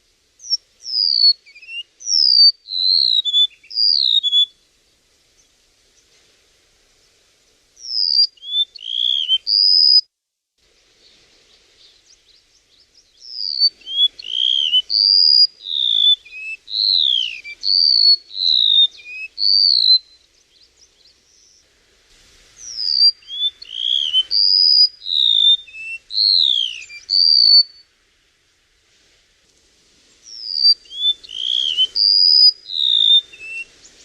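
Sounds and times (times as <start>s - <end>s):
bird whistled song: 0.4s - 4.6s, 7.8s - 10.1s, 12.1s - 21.6s, 22.6s - 27.9s, 30.2s - 34.0s.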